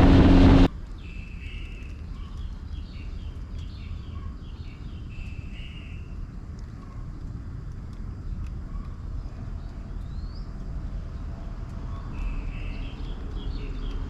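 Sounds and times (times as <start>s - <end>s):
steady low rumble: 0.0s - 0.7s.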